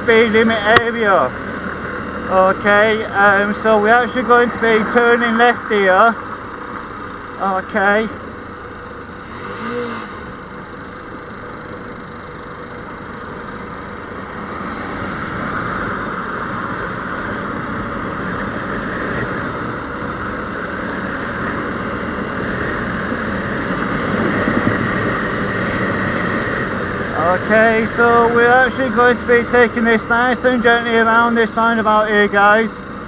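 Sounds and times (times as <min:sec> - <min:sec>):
motorcycle engine running: 0:00.0 - 0:33.0
wind rushing over microphone: 0:14.2 - 0:27.4.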